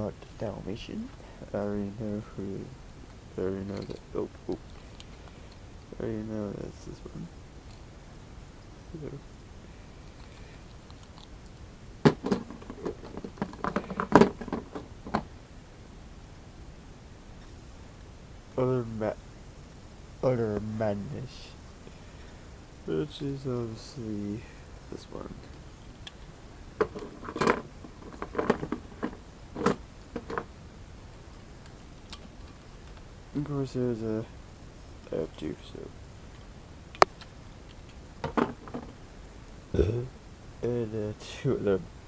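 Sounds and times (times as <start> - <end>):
toy trucks clicking and knocking: 12.1 - 15.3, 26.8 - 30.5, 37.0 - 39.0.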